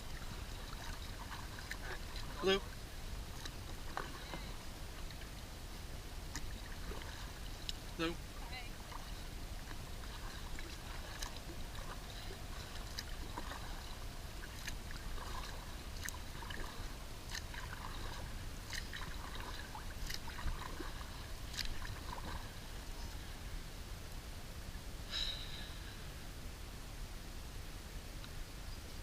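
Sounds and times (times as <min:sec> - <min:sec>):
paddle water splashing: 0:00.0 - 0:23.7
sharp paddle splash: 0:10.0 - 0:22.5.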